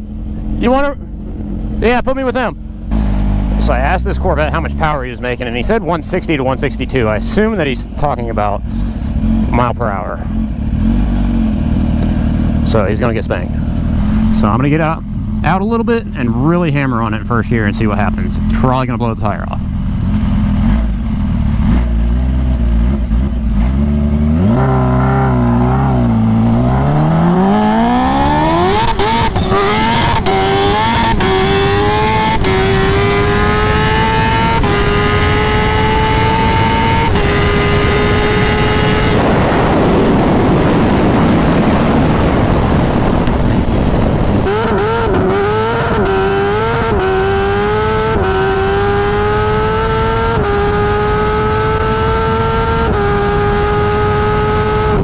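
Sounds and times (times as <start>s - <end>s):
motorcycle engine accelerating: 0.0s - 55.0s
wind rush: 24.3s - 55.0s.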